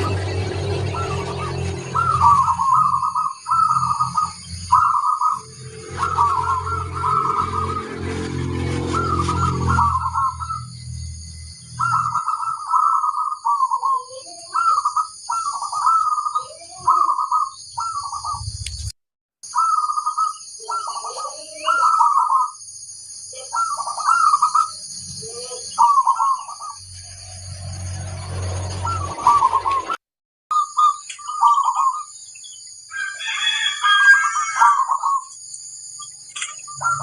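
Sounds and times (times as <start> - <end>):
doves cooing: 0.0 - 10.7, 11.8 - 18.5, 19.6 - 22.6, 23.4 - 26.8, 28.5 - 30.0, 30.6 - 32.1, 33.2 - 35.3, 36.4 - 37.0.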